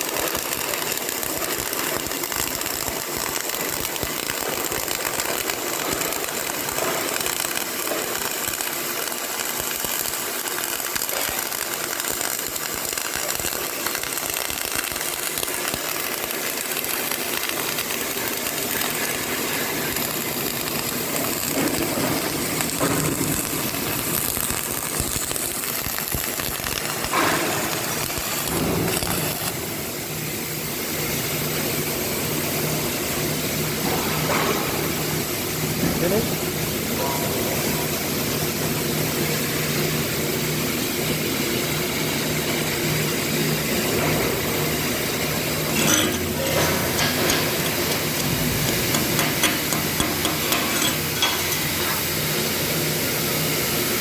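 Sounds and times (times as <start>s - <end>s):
welding arc crackling: 0.0s - 54.0s.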